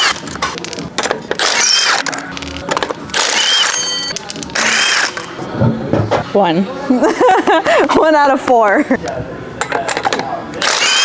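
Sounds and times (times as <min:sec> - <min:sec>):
air impact wrench whining: 0:00.0 - 0:05.5, 0:10.6 - 0:11.0.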